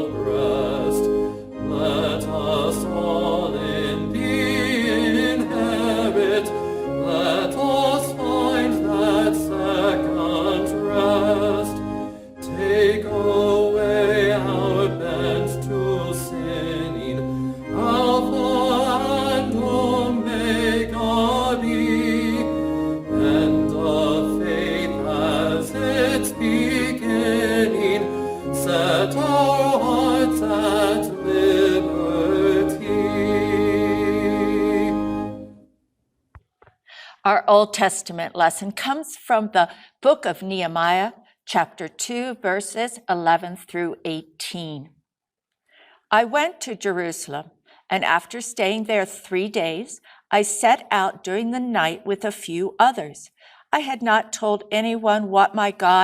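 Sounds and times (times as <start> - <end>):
singing with vibrato: 1.7 - 11.8, 12.4 - 17.2, 17.8 - 22.6, 23.2 - 35.1.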